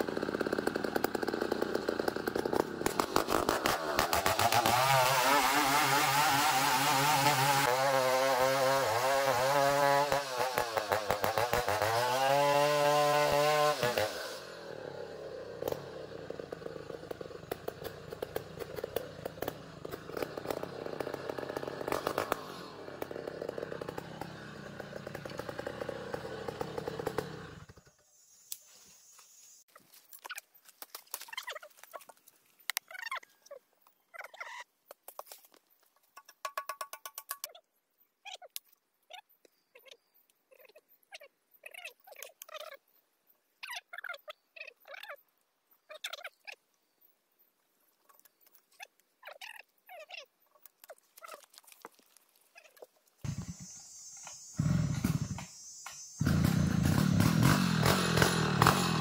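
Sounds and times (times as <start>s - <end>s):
chainsaw cutting wood: 0.0s - 27.9s, 53.2s - 59.0s.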